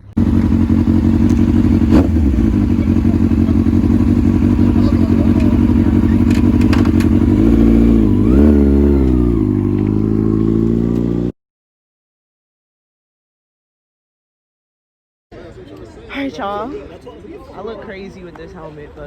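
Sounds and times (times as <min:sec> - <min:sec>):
motorcycle engine idling and revving: 0:00.0 - 0:11.4.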